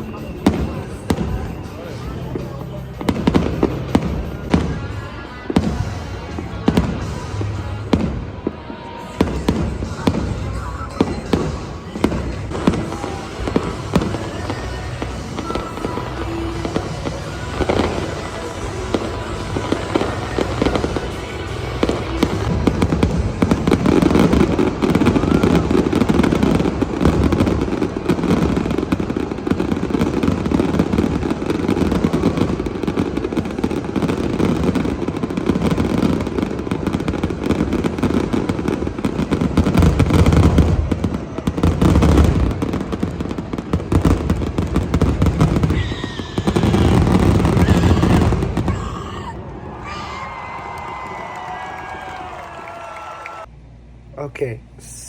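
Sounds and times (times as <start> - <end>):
music playing: 0.0 - 34.1
fireworks bangs and crackling: 0.0 - 53.5.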